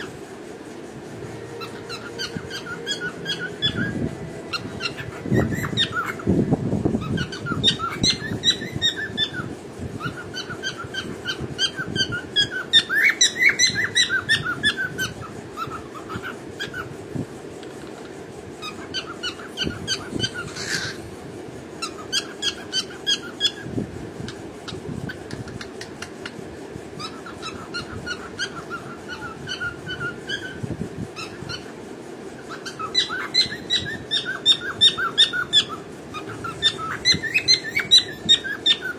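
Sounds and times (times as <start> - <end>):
cockatiel chirping: 1.5 - 6.3, 7.0 - 16.9, 18.6 - 21.0, 21.8 - 23.7, 27.0 - 30.6, 31.2 - 31.7, 32.4 - 38.9.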